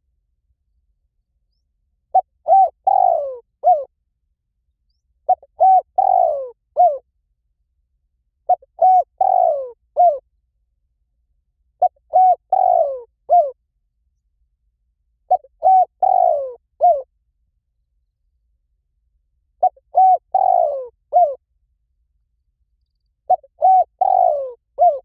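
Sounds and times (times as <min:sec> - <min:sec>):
dove cooing: 0:02.1 - 0:03.9, 0:05.3 - 0:07.0, 0:08.5 - 0:10.2, 0:11.8 - 0:13.6, 0:15.3 - 0:17.1, 0:19.6 - 0:21.4, 0:23.3 - 0:25.0.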